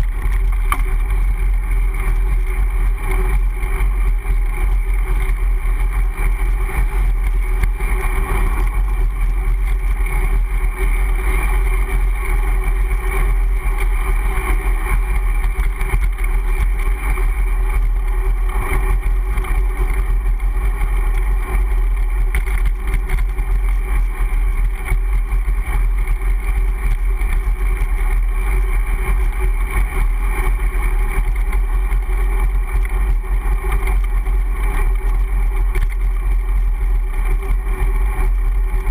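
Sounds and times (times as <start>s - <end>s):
bicycle road noise: 0.0s - 38.9s.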